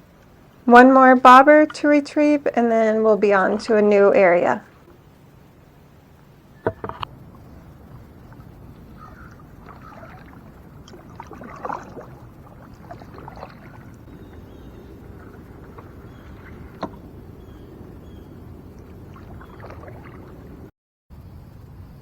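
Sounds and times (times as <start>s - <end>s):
knocks against kayak hull: 6.6s - 7.1s, 15.8s - 17.1s
water splashing and dripping: 7.0s - 20.7s.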